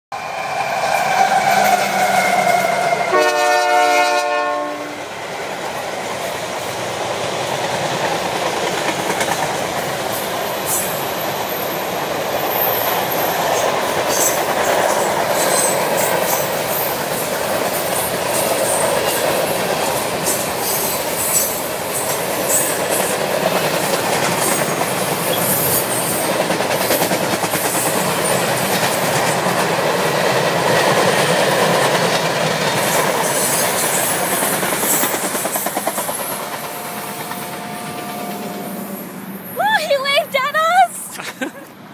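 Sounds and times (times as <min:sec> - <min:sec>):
locomotive horn: 0:03.0 - 0:05.1, 0:36.7 - 0:38.9.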